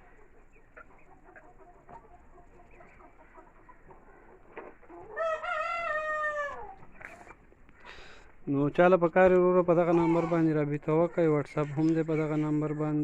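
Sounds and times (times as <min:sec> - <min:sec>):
chickens clucking softly: 0:00.0 - 0:08.7, 0:09.3 - 0:13.0
young cockerel crowing: 0:05.2 - 0:06.8.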